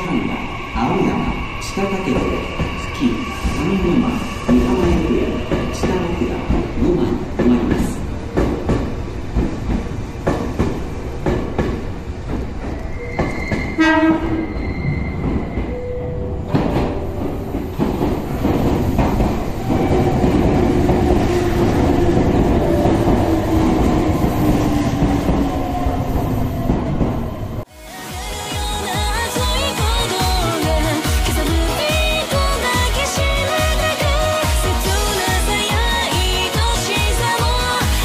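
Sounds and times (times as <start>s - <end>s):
train horn blast: 13.8s - 14.5s
train wheels clattering: 16.5s - 25.7s.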